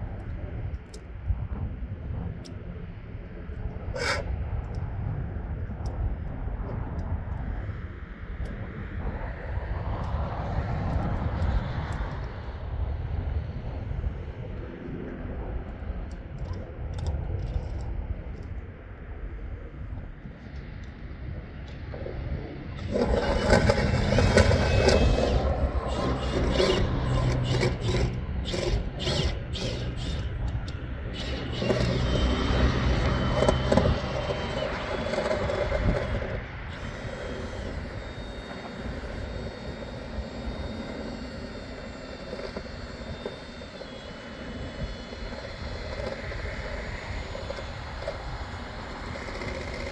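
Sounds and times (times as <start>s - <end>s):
motor running with scraping: 3.5s - 4.4s, 22.8s - 49.9s.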